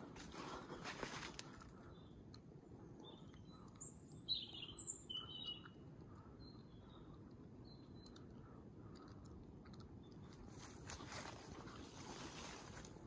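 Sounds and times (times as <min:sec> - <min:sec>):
small songbird chirping: 0:01.7 - 0:12.0.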